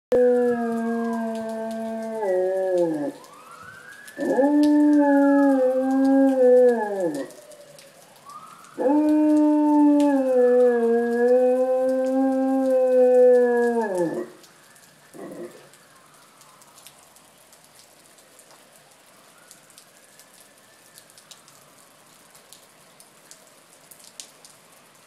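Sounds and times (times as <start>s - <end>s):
dog howling: 0.1s - 3.2s, 4.2s - 7.5s, 8.8s - 14.4s, 15.2s - 15.6s
fire truck siren wailing: 0.1s - 17.2s, 18.7s - 21.9s.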